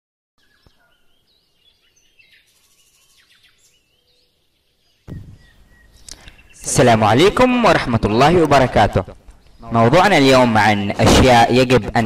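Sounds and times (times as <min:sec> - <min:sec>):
faint bird chirps and whistles: 0:00.4 - 0:06.8.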